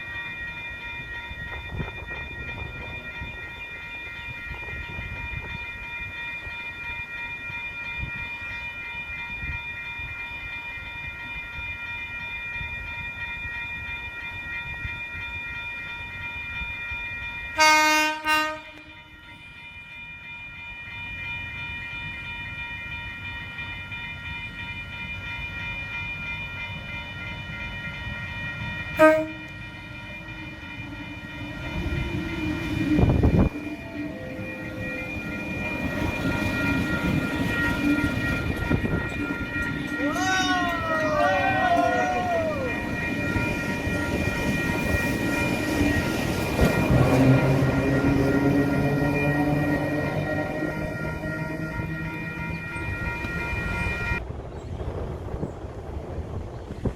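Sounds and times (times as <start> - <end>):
approaching train rumble: 0.0 - 11.7, 14.3 - 56.9
electric train horn: 17.6 - 18.9, 29.0 - 29.6.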